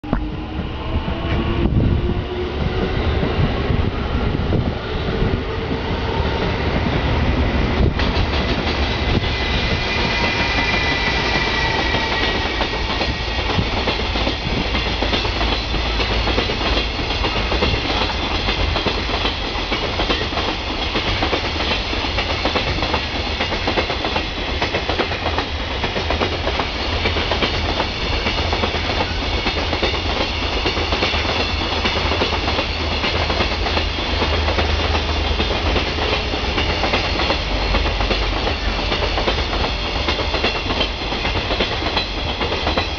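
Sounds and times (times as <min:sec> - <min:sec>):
locomotive whine: 0:00.0 - 0:18.8.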